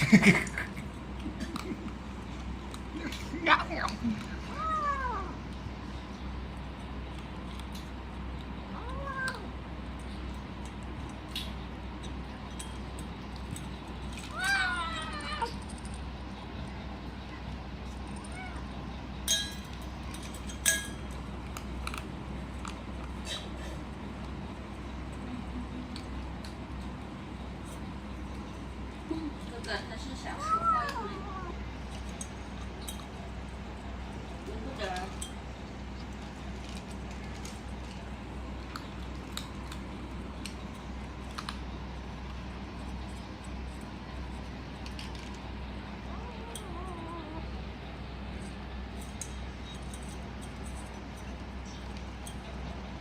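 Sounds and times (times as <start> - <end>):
kitten crunching kibble: 0.0 - 53.0
steady low hum: 0.0 - 53.0
food bowl clinking: 19.2 - 21.2.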